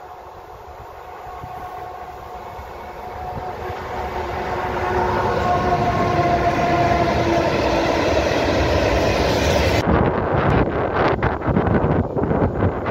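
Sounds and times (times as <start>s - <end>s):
locomotive whine: 0.0s - 10.2s
train wheels rumbling on rail: 0.0s - 12.9s.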